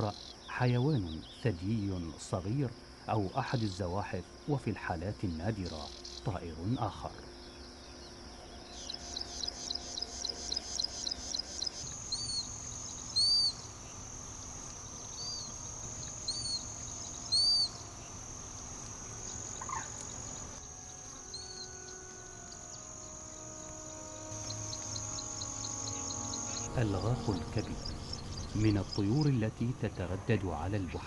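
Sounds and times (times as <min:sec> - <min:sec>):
high-pitched insect buzzing: 0:00.0 - 0:31.0
wild birds calling: 0:00.0 - 0:31.0
fast pulsing trill: 0:08.5 - 0:30.2.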